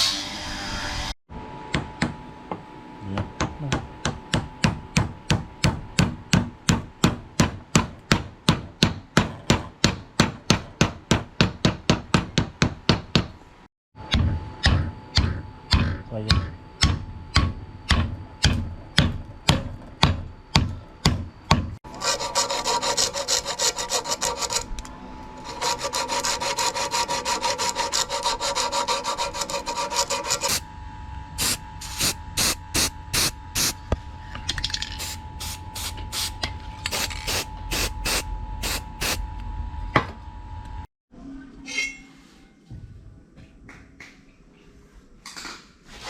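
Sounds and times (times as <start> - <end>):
filing strokes on metal: 21.9 - 24.7, 25.4 - 30.6.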